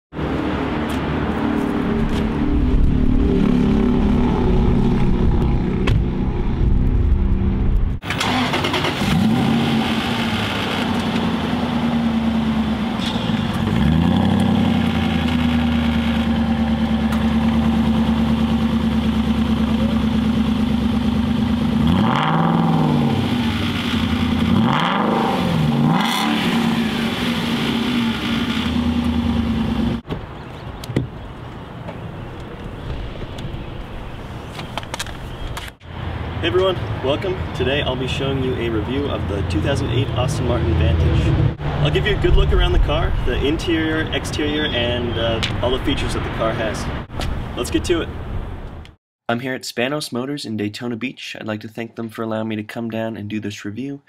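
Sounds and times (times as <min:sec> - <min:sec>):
car engine idling and revving: 0:00.2 - 0:30.0.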